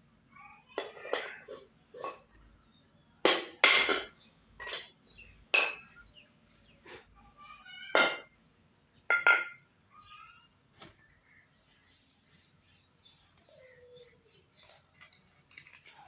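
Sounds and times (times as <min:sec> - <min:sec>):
metallic knocks and clinks: 0:03.3 - 0:06.0, 0:09.1 - 0:09.6.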